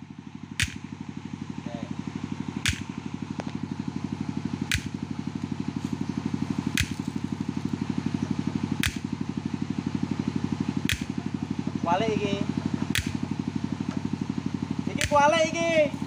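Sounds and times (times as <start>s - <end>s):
diesel engine chugging: 0.0s - 16.0s
sharp click: 0.6s - 0.8s, 2.6s - 2.9s, 4.7s - 4.9s, 6.7s - 7.1s, 8.8s - 9.0s, 10.9s - 11.2s, 12.9s - 13.2s, 15.0s - 15.2s.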